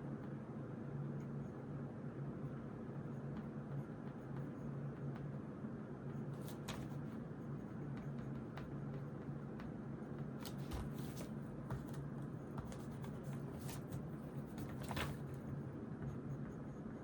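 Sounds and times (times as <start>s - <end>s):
paper handling: 10.4s - 12.0s, 12.6s - 15.4s.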